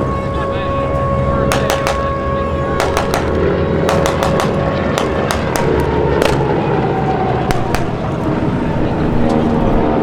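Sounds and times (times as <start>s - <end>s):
aircraft engines rumbling: 0.0s - 10.0s
gunfire cracks: 1.5s - 2.2s, 2.8s - 6.6s, 7.5s - 8.1s.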